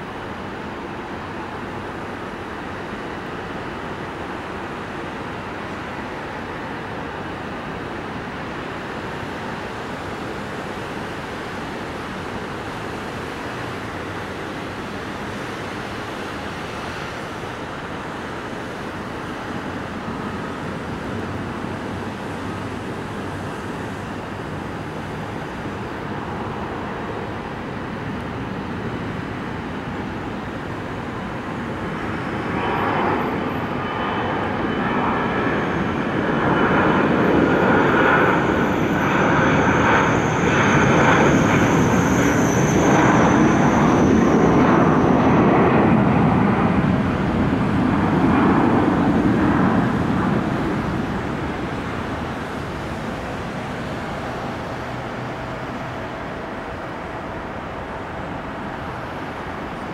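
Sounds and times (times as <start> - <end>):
high engine whine: 0.0 - 59.9
jet engine rumble: 0.0 - 59.9.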